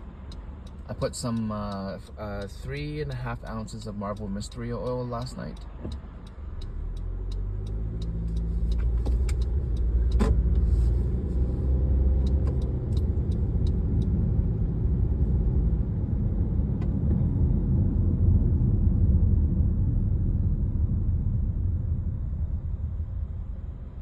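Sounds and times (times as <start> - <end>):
engine and road rumble: 0.0 - 24.0
light ticking: 0.1 - 15.4.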